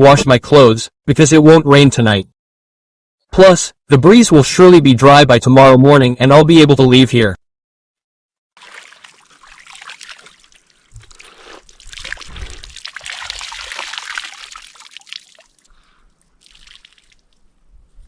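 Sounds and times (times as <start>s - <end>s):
water sloshing and splashing: 8.6s - 17.6s.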